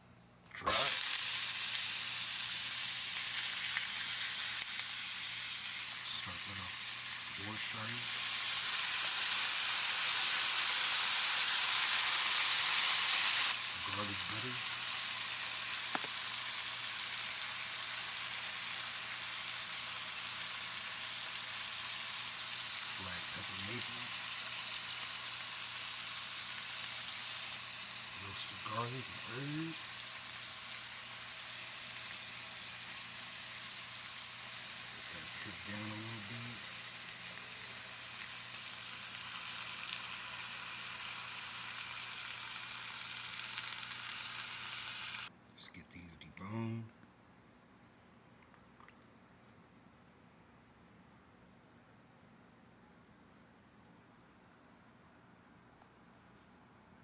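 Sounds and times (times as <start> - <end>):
food sizzling in a hot pan: 0.7 - 45.3.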